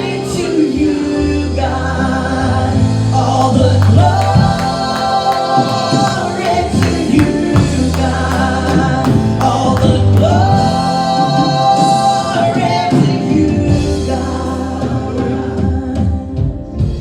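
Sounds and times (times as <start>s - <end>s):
singers holding sustained notes: 1.9s - 12.3s
drum hits: 3.4s - 10.9s.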